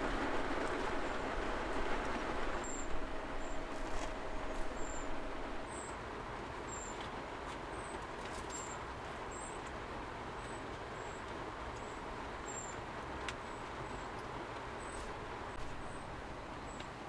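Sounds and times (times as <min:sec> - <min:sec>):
rain hissing: 0:00.0 - 0:05.6.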